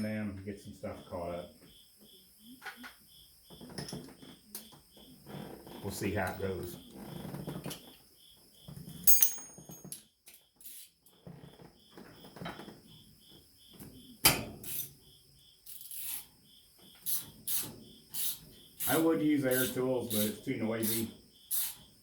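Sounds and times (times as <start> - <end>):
hand tools clinking on metal: 9.0 - 10.0
metallic clink ringing: 9.0 - 10.0.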